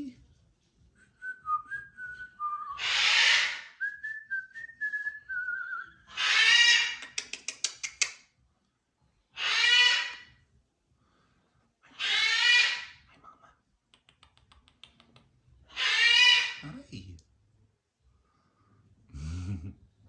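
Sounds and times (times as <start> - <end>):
macaws squawking: 2.8 - 3.7, 6.1 - 7.3, 9.4 - 10.3, 11.9 - 13.0, 15.7 - 16.6.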